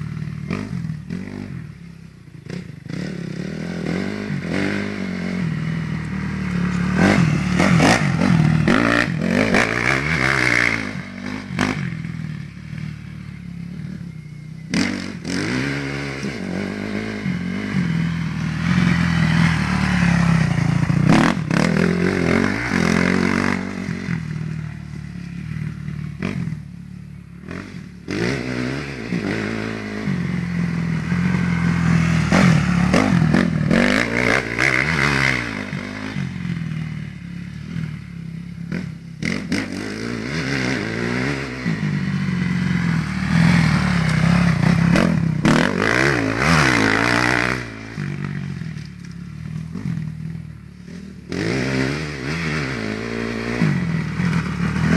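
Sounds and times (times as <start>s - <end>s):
motocross bike engine revving: 0.0s - 54.9s.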